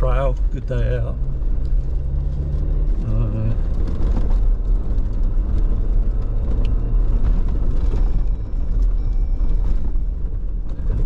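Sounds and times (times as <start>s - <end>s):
engine and tyre rumble: 0.0s - 11.0s.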